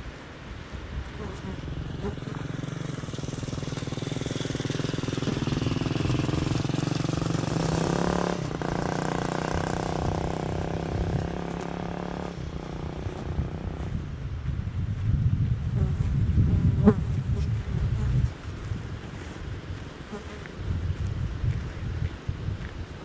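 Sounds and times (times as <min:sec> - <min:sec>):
vehicle engine running: 0:01.6 - 0:15.1.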